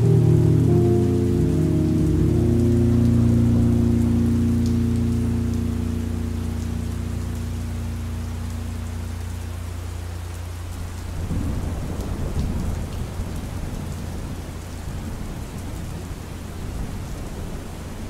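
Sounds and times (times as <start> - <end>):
low musical tones: 0.0 - 10.7
steady rain: 0.0 - 18.0
low rumble of thunder: 10.9 - 18.0.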